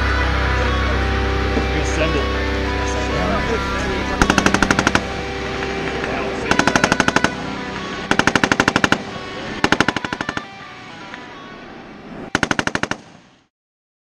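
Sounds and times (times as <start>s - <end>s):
song playing: 0.0s - 11.8s
machine gun bursts: 4.2s - 5.1s, 6.5s - 7.5s, 8.1s - 10.6s, 12.3s - 13.1s.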